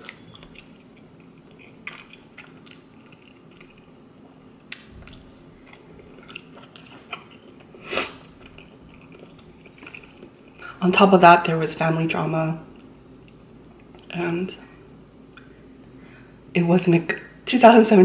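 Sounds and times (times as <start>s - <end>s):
person chewing noodles: 0.0s - 10.7s.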